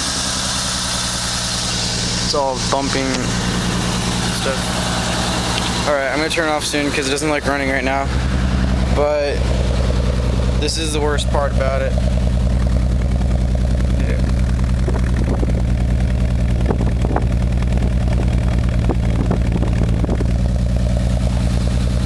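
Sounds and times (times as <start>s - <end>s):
car engine idling roughly: 0.0s - 22.0s.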